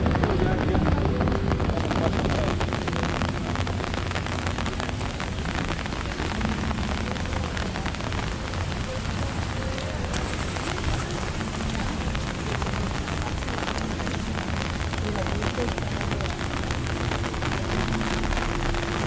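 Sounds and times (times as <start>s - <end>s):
rain pattering on umbrella: 0.0s - 19.0s.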